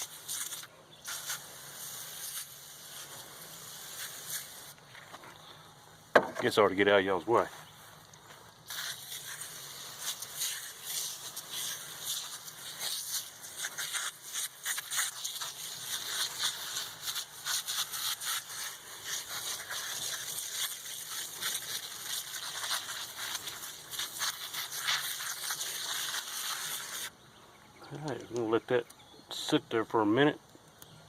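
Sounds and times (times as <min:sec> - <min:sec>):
aerosol spray hissing: 0:00.0 - 0:04.8, 0:08.7 - 0:27.1.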